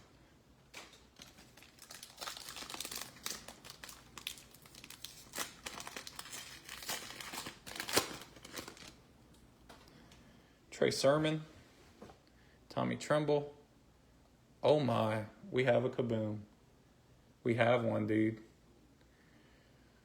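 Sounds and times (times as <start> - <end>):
foil wrapper crinkling and tearing: 0.7 - 9.0.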